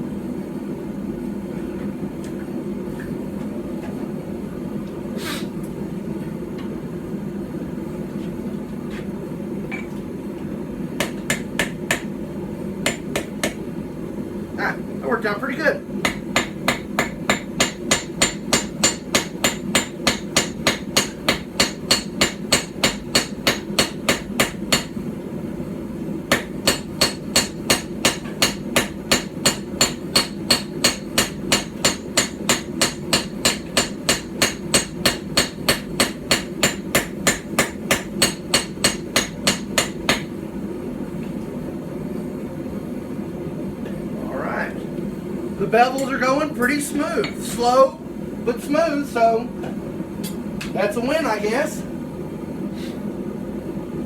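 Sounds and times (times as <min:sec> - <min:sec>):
steady low hum: 0:00.0 - 0:54.0
hammer striking hot steel: 0:11.0 - 0:12.1, 0:12.8 - 0:13.6, 0:16.0 - 0:25.0, 0:26.3 - 0:40.4.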